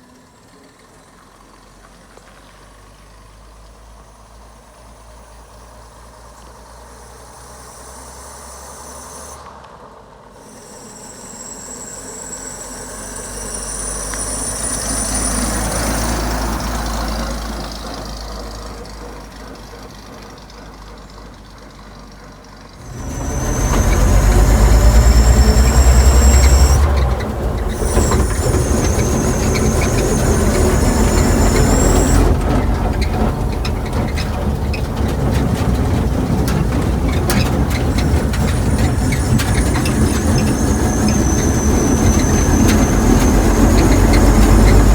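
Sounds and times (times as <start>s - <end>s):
pickup truck engine running: 10.9s - 44.9s.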